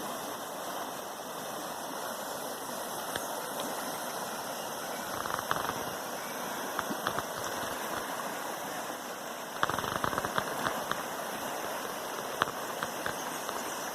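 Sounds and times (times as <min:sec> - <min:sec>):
river water rushing: 0:00.0 - 0:13.9
light clicks: 0:09.6 - 0:11.1.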